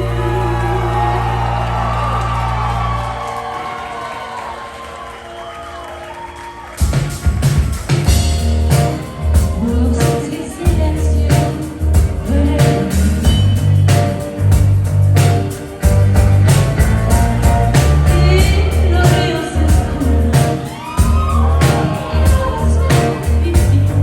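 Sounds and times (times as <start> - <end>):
person singing: 0.0 - 2.3, 8.5 - 15.6, 17.4 - 24.0
heavy bass notes: 0.0 - 3.5, 7.3 - 24.0
drum beat: 6.8 - 24.0.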